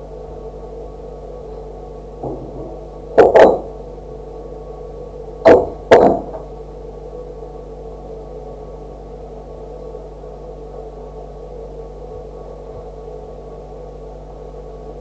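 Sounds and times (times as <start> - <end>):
steady electrical hum: 0.0 - 15.0
sharp knocks: 2.2 - 4.2, 5.5 - 6.6.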